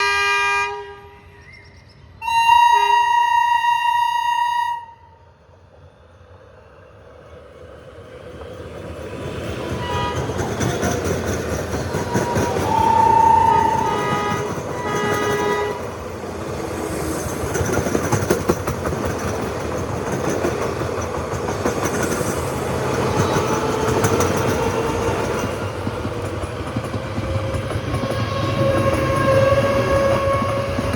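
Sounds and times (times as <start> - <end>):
train horn: 0.0 - 1.4, 2.2 - 5.2, 9.8 - 10.5, 12.0 - 16.0, 28.0 - 30.9
train accelerating: 0.0 - 30.9.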